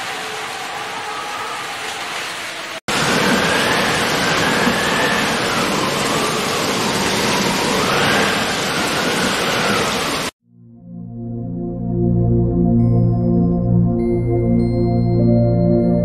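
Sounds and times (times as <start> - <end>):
heavy rain pouring: 0.0 - 10.4.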